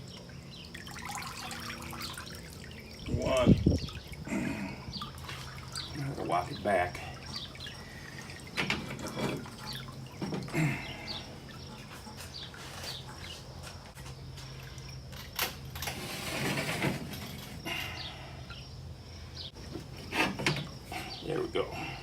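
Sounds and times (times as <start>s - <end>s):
low steady hum: 0.0s - 22.0s
water dripping and splashing: 0.1s - 13.5s
water rushing: 0.8s - 10.2s.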